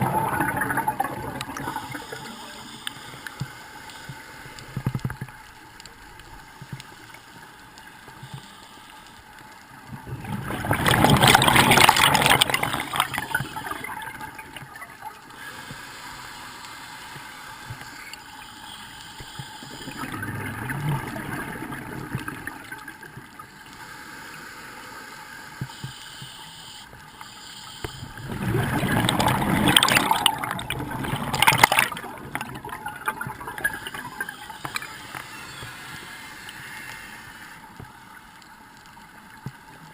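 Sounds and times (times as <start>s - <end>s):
underwater bubbles rushing: 0.0s - 2.3s, 9.8s - 15.3s, 19.7s - 23.6s, 28.0s - 34.8s
faint steady hiss: 0.0s - 39.9s.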